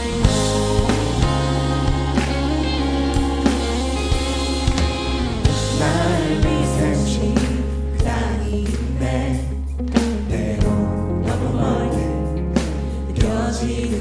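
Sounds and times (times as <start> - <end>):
drum hits: 0.0 - 9.0
voices singing along: 0.0 - 14.0
worship band playing: 0.0 - 14.0.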